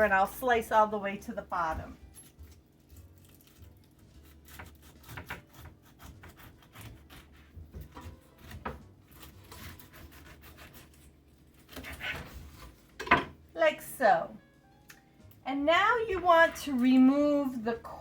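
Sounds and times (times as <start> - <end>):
knife slicing through pineapple: 2.0 - 12.9.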